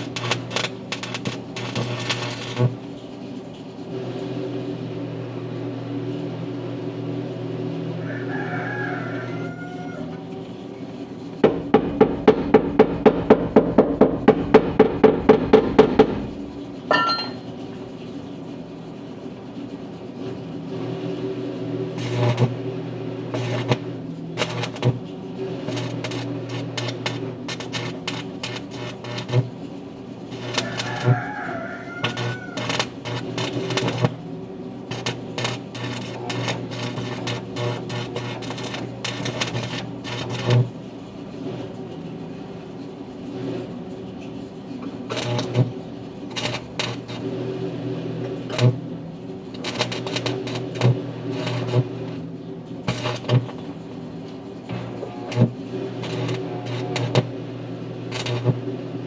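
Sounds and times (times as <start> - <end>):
welding arc crackle: 0.0 - 2.9, 22.0 - 29.6, 30.2 - 40.8, 45.1 - 47.4, 48.4 - 48.8, 49.5 - 52.2, 52.9 - 53.8, 54.7 - 57.4, 58.0 - 58.7
welding machine humming: 0.0 - 3.1, 20.6 - 41.7, 44.8 - 59.0
metal struck and ringing: 16.9 - 17.5.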